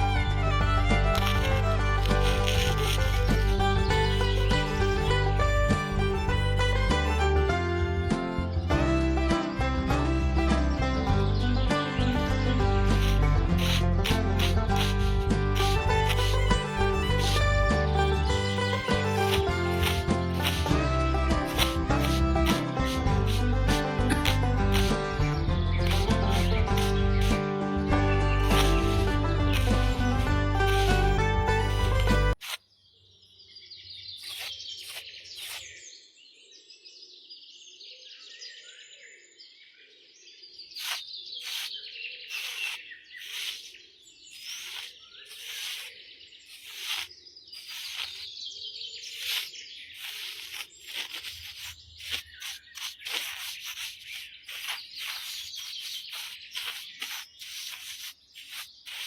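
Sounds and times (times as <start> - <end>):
birds chirping: 0.0 - 7.4, 11.2 - 27.5, 28.1 - 36.8, 40.3 - 59.0.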